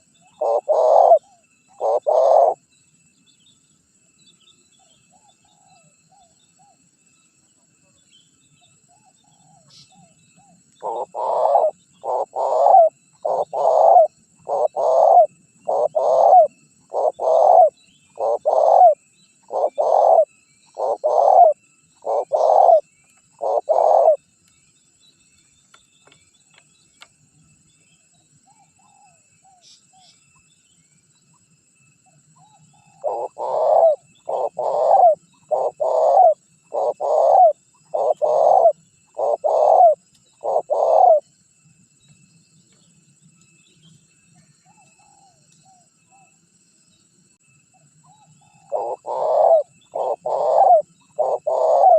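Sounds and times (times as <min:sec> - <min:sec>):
dove cooing: 0:00.0 - 0:02.6, 0:08.9 - 0:24.2, 0:32.4 - 0:41.2, 0:44.7 - 0:46.3, 0:48.1 - 0:51.9.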